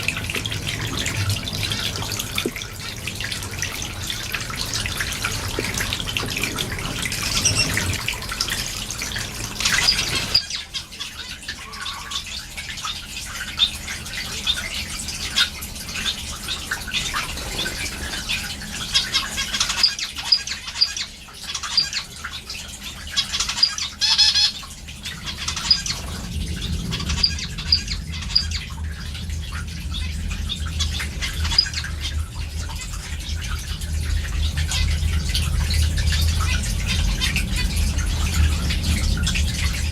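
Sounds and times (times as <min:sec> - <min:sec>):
finches chirping: 0:06.4 - 0:08.0
steady low noise: 0:25.9 - 0:39.9.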